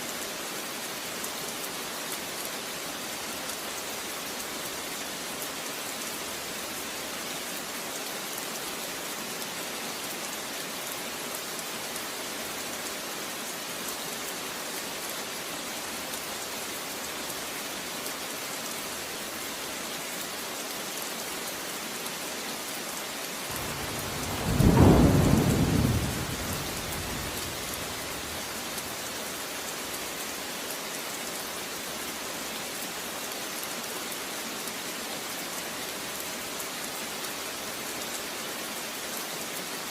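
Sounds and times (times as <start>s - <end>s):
steady rain falling: 0.0s - 39.9s
thunder rolling: 23.5s - 28.8s.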